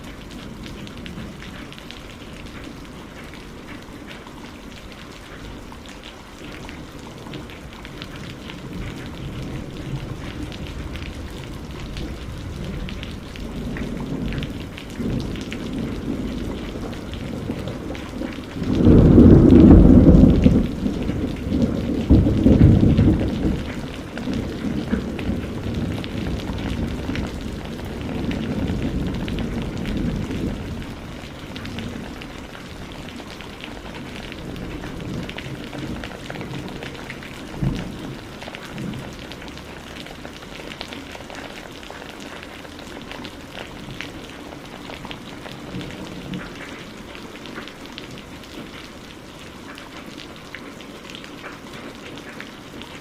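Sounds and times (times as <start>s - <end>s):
steady rain: 0.0s - 53.0s
thunder rumbling: 7.2s - 41.5s.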